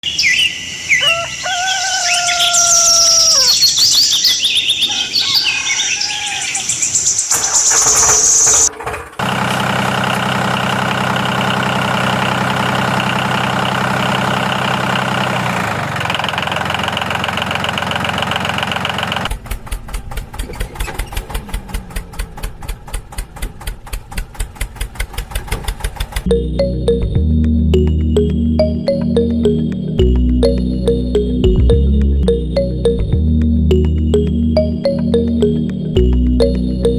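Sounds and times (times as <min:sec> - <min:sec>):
chirping bird-like whistles: 0:02.0 - 0:08.7
steady engine-like hum: 0:07.4 - 0:36.9.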